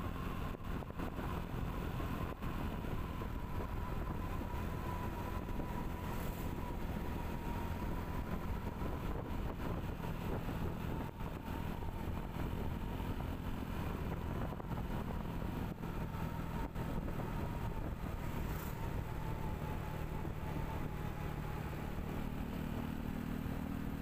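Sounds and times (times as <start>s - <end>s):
motorbike engine hum: 0.0s - 24.0s
wind and road noise: 0.0s - 24.0s.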